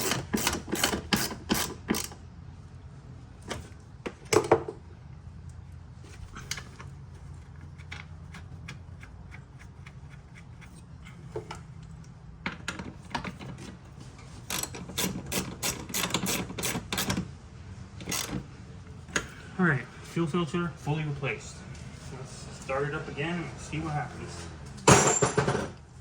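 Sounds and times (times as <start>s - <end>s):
steady low hum: 0.0s - 25.1s
hand tools clicking on metal: 14.5s - 17.2s.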